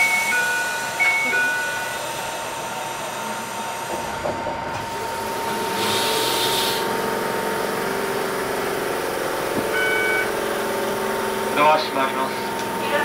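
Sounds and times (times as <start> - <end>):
short beep: 0.0 - 1.9, 9.7 - 10.4
train equipment humming: 0.0 - 13.0
air hiss: 5.8 - 6.9.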